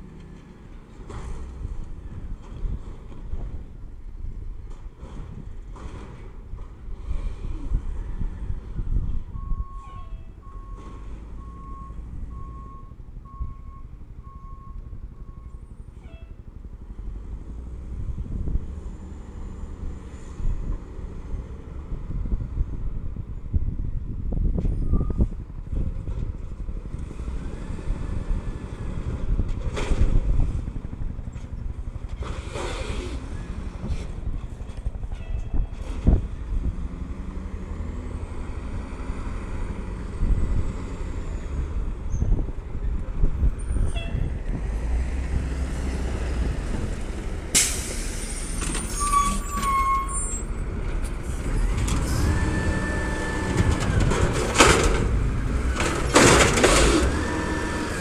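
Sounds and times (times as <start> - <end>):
garbage truck engine rumbling: 0.0 - 58.0
air brake hiss: 47.6 - 48.6.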